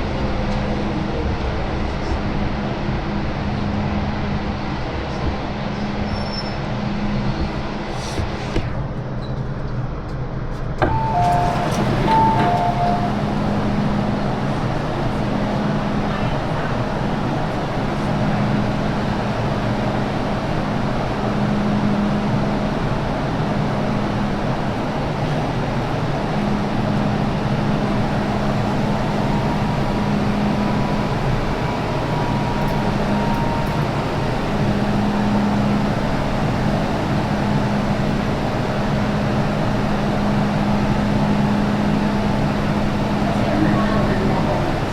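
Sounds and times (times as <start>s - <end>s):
train wheels and motors rumbling: 0.0s - 44.9s
two-note electronic chime: 10.9s - 13.2s.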